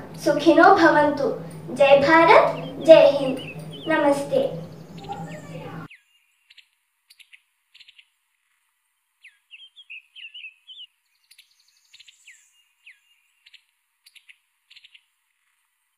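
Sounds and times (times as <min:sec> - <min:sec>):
bird warbled phrase: 0:00.0 - 0:05.9
birds chirping falling whistles: 0:00.1 - 0:07.2, 0:09.2 - 0:14.2.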